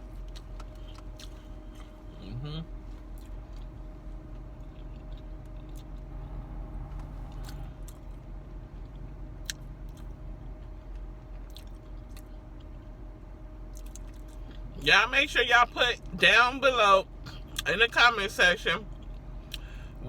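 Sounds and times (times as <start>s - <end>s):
person chewing food: 0.0s - 2.2s, 2.8s - 6.2s, 6.9s - 12.9s, 13.6s - 14.7s, 18.9s - 19.9s
steady low hum: 0.0s - 20.0s
faint crunchy clicks: 13.7s - 14.6s.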